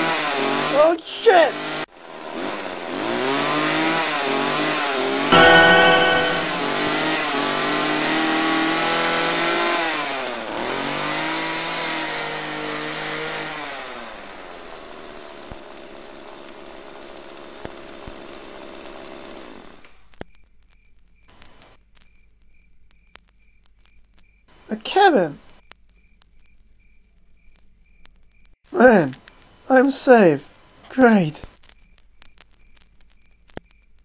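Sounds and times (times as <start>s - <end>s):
chainsaw running and revving: 0.0s - 0.8s, 1.5s - 4.6s, 10.6s - 13.9s.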